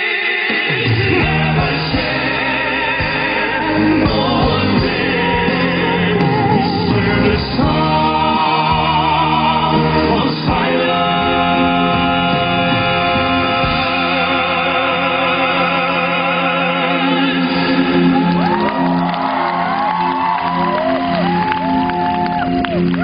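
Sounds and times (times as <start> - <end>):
male vocal quartet singing in harmony: 0.0 - 19.1
audience shouting and cheering: 17.4 - 23.0.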